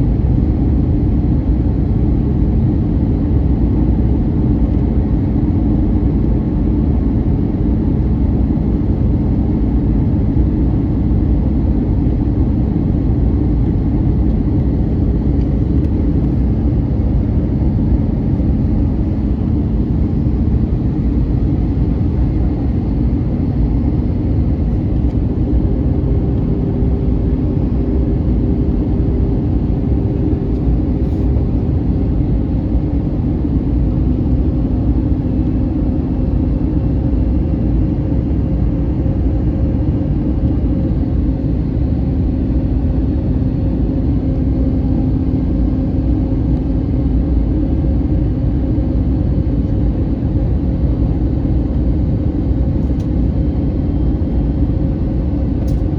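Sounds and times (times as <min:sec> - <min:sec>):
aircraft cabin engine rumble: 0:00.0 - 0:55.9.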